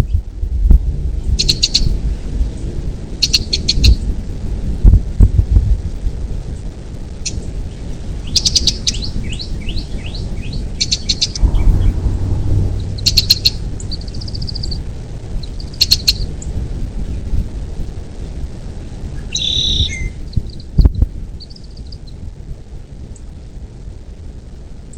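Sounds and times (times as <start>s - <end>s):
low steady rumble: 0.0s - 19.3s
birds chirping: 7.3s - 16.4s
downward-slurred bird whistles: 19.3s - 20.2s.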